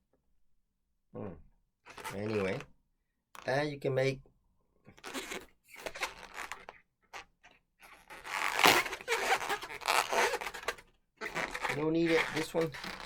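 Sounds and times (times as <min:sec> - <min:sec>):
balloons rubbing and squeaking: 0:01.9 - 0:02.6, 0:04.9 - 0:13.0.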